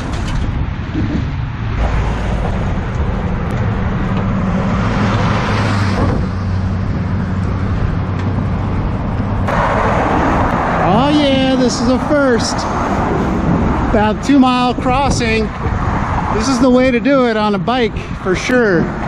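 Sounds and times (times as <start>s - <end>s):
low engine hum: 0.0s - 14.2s
cars going by: 0.0s - 19.0s
vehicle passing: 0.0s - 19.0s.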